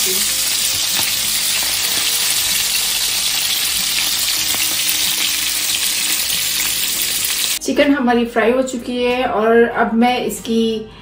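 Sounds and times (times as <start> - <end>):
chicken frying in oil: 0.0 - 7.6.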